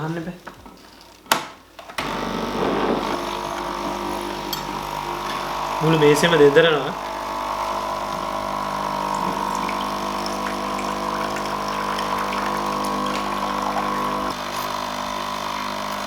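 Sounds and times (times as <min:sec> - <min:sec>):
coffee machine pump humming: 0:01.8 - 0:16.0
water running into container: 0:02.0 - 0:16.0
table vibrating: 0:02.1 - 0:14.7.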